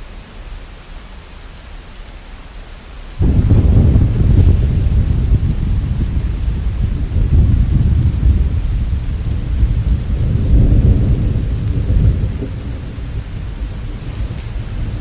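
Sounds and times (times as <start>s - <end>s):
heavy rain: 0.0s - 15.0s
rolling rumble of thunder: 3.2s - 15.0s.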